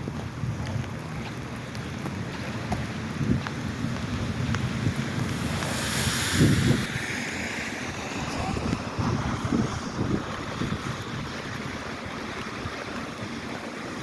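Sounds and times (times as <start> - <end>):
steady rain: 0.0 - 14.0
wind buffeting the microphone: 0.0 - 14.0
hiss: 4.6 - 10.9.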